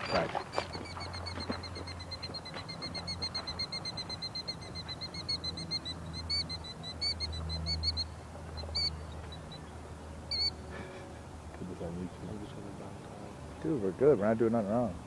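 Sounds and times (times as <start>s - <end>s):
bird calling with high notes: 0.0s - 10.7s.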